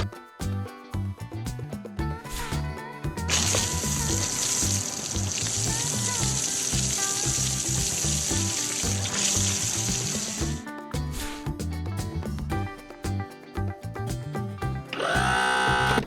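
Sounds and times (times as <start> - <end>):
music with bouncy bass line: 0.0 - 16.0
welding sparks sizzling hiss: 3.4 - 10.6.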